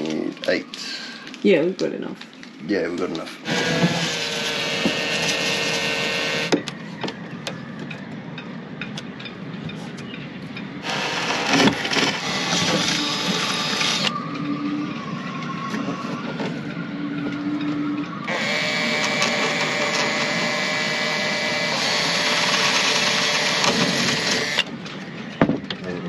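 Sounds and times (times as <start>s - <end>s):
electric drill running: 3.4s - 6.6s, 10.8s - 14.1s, 18.3s - 24.7s.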